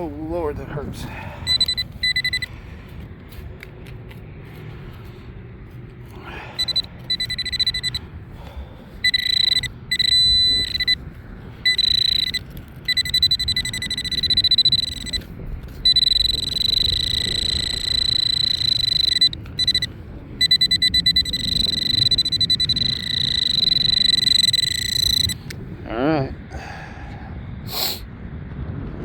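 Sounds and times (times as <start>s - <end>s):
wind rumble on microphone: 0.0s - 29.0s
pinpointer high-pitched beep: 1.4s - 2.5s, 6.6s - 8.1s, 9.0s - 11.0s, 11.6s - 25.4s.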